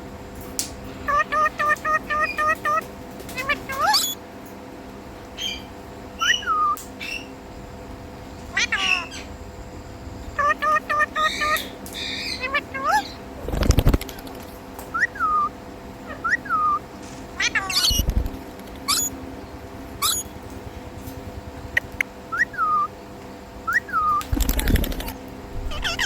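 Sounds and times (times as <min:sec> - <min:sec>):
parrot harsh squawks: 0:01.0 - 0:04.2, 0:05.4 - 0:07.3, 0:08.5 - 0:09.3, 0:10.4 - 0:13.3, 0:16.1 - 0:16.8, 0:17.4 - 0:18.1, 0:18.9 - 0:19.2, 0:20.0 - 0:20.3, 0:21.8 - 0:22.9, 0:25.7 - 0:26.0
parrot whistling: 0:01.1 - 0:02.8, 0:03.4 - 0:04.2, 0:05.4 - 0:07.3, 0:08.5 - 0:09.3, 0:10.4 - 0:13.2, 0:14.9 - 0:18.1, 0:18.9 - 0:19.2, 0:20.0 - 0:20.3, 0:21.8 - 0:23.0, 0:23.6 - 0:24.3, 0:25.7 - 0:26.0.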